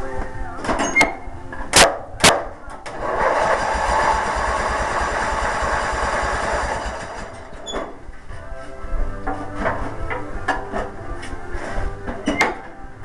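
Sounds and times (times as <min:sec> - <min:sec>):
lawn mower engine cranking: 0:02.8 - 0:07.7.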